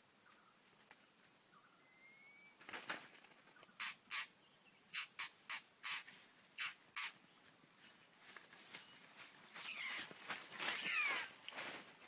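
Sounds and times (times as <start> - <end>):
harsh bird call bursts: 9.6 - 10.1.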